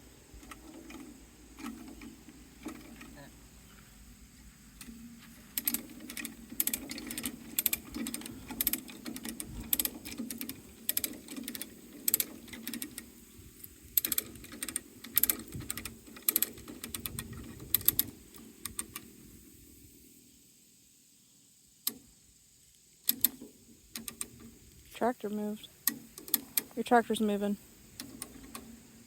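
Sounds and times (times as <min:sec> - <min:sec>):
low steady hum: 0:00.0 - 0:29.0
hand ratchet clicking: 0:04.8 - 0:19.1, 0:23.1 - 0:24.5, 0:25.8 - 0:26.8.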